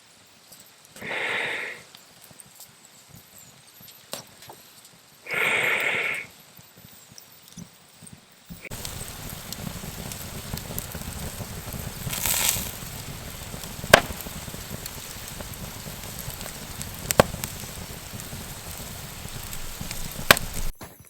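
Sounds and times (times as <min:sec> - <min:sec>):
campfire embers crackling: 0:00.2 - 0:21.0
sharp fire pops: 0:08.5 - 0:21.0.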